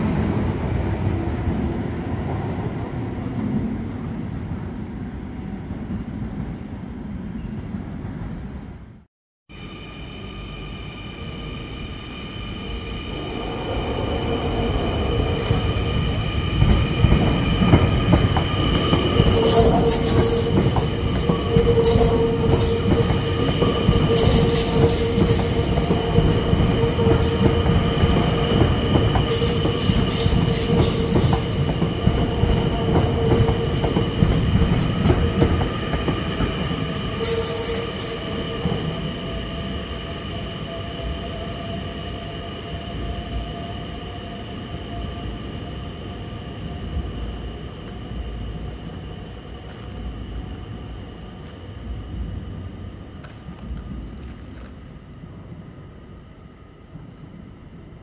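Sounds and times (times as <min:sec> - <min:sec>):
electric train wheel whine: 0:09.5 - 0:54.7.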